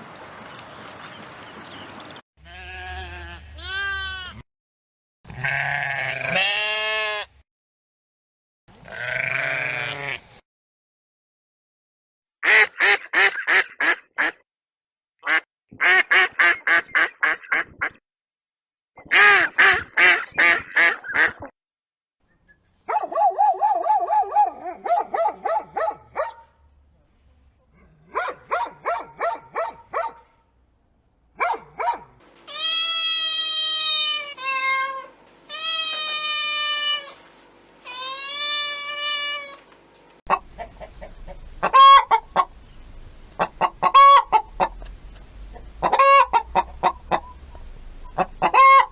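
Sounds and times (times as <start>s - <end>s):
farm animal long pitched cries: 2.4s - 4.4s, 5.3s - 7.4s, 8.8s - 10.4s, 32.5s - 37.2s, 37.8s - 39.7s
ducks quacking: 12.4s - 14.4s, 15.2s - 18.0s, 19.0s - 21.5s, 40.3s - 42.6s, 43.4s - 44.8s, 45.5s - 48.9s.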